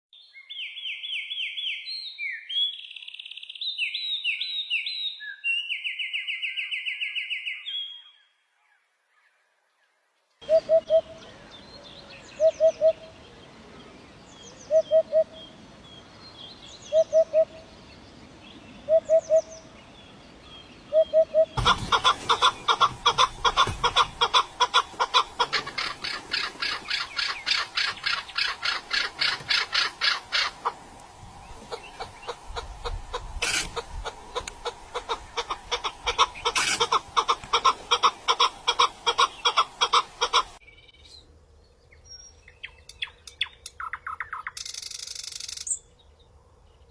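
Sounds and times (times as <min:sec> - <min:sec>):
bird rapidly repeating notes: 0:21.2 - 0:30.8.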